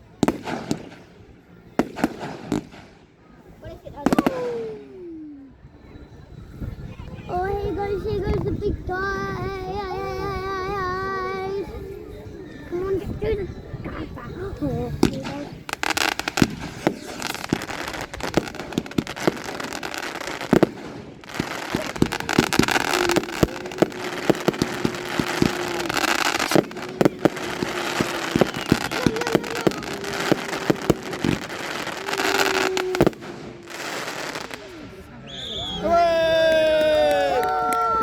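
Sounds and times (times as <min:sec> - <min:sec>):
fireworks bangs and crackling: 0:00.0 - 0:05.1, 0:14.4 - 0:35.9.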